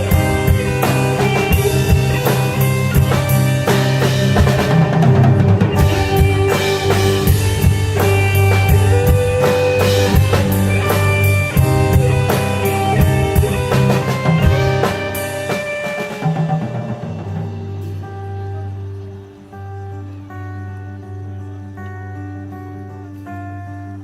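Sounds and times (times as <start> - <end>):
drum kit hits: 0.0 - 18.2
band playing instrumental: 0.0 - 24.0
held guitar notes: 0.0 - 24.0.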